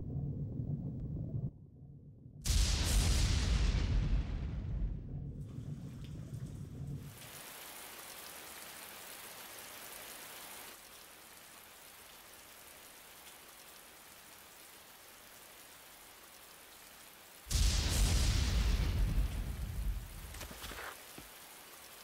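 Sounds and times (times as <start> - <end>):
low rumble: 0.0 - 7.2
rain falling: 5.4 - 22.0.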